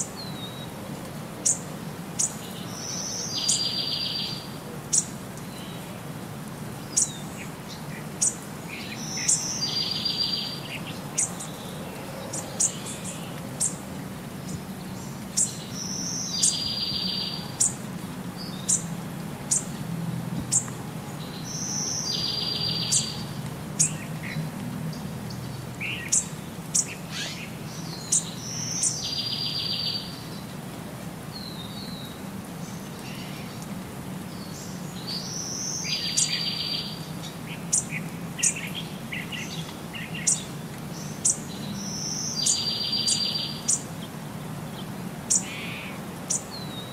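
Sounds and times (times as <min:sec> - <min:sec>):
birds chirping: 0:01.4 - 0:06.1, 0:06.8 - 0:19.8, 0:20.4 - 0:30.5, 0:31.3 - 0:46.9.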